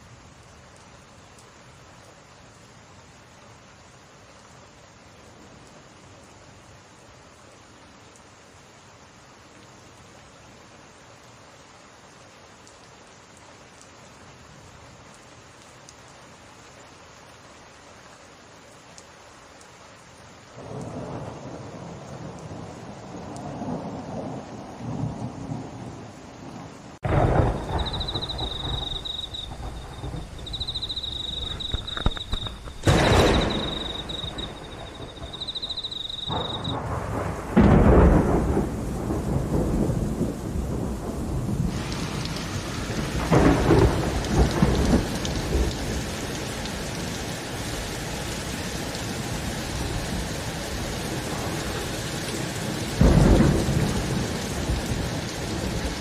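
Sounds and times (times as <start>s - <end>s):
heavy rain: 0.0s - 56.0s
thunder cracking and rumbling: 20.6s - 46.1s, 51.2s - 56.0s
thin wavering high whine: 27.4s - 36.7s.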